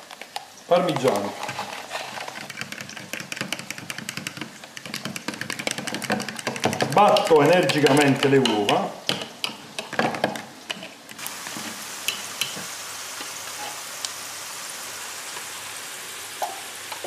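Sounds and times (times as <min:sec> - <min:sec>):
eggs beaten in glass bowl: 0:02.4 - 0:09.2
food sizzling in frying pan: 0:05.6 - 0:17.0.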